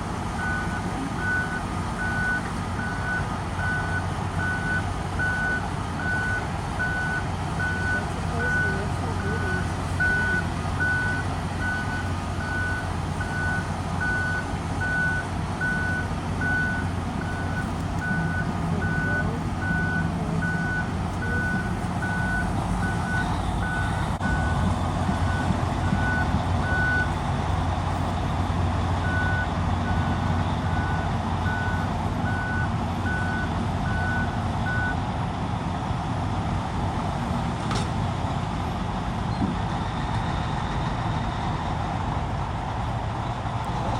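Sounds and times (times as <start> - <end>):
diesel engine running: 0.0 - 43.9
backup alarm beeping: 0.4 - 27.3.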